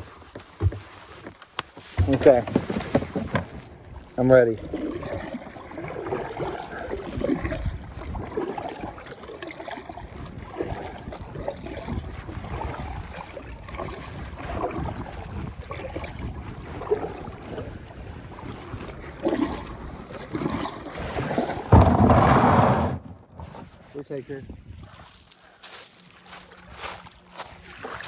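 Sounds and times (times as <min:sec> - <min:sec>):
water sloshing around hull: 0:00.0 - 0:28.0
wind on microphone: 0:06.7 - 0:09.0, 0:09.8 - 0:23.8, 0:24.4 - 0:25.2
knocks on kayak hull: 0:21.7 - 0:23.1.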